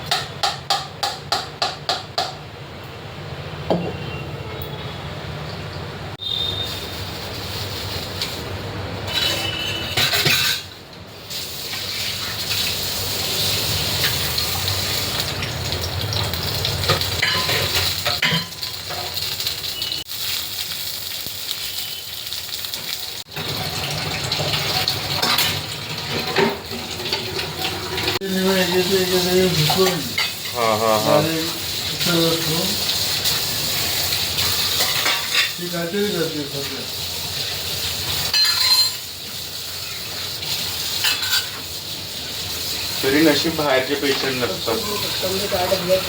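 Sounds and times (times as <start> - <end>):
food sizzling in a pan: 6.2 - 46.0
spoon clinking and scraping pot: 9.1 - 10.7, 16.9 - 19.2, 34.5 - 35.6, 38.3 - 39.0, 41.0 - 41.6.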